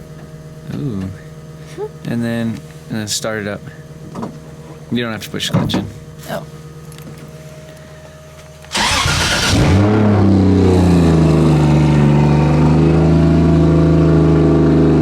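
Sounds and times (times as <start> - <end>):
car engine idling: 0.0 - 15.0
starter motor cranking: 8.7 - 10.1.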